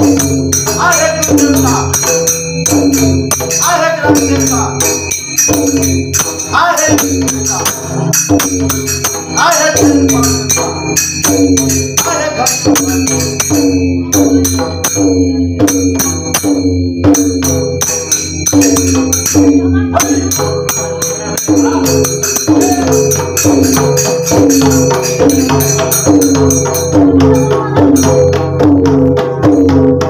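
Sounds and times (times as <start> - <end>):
brass hand cymbals clashing: 0.0 - 30.0
hand drum beat: 0.0 - 30.0
person singing: 19.6 - 24.1, 27.1 - 28.5.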